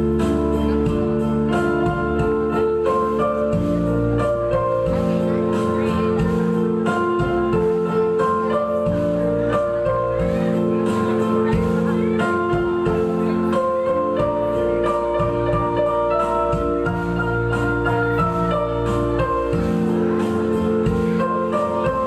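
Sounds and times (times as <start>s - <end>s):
slow instrumental music: 0.0s - 22.0s.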